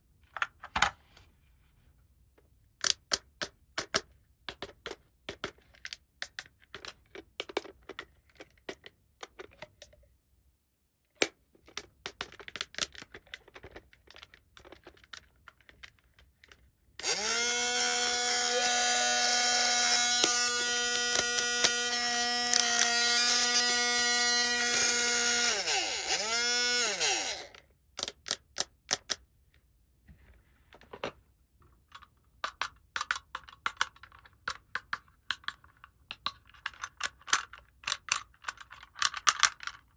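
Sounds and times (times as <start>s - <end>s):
plastic toy parts clicking: 2.8s - 10.0s, 11.2s - 29.2s, 31.9s - 39.9s
small motor whirring: 17.0s - 27.6s.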